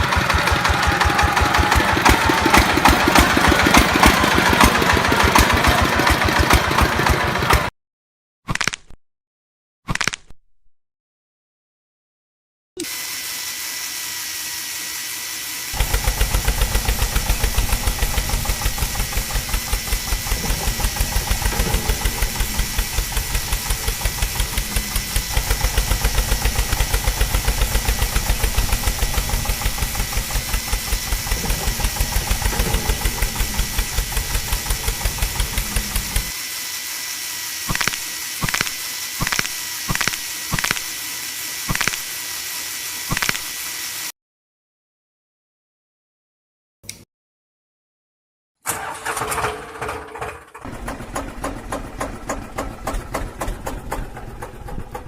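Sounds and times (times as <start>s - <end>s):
tractor engine thumping: 0.0s - 7.7s, 15.8s - 36.3s, 48.8s - 55.0s
short sharp clicks: 37.7s - 41.0s, 41.7s - 42.1s, 43.1s - 43.5s.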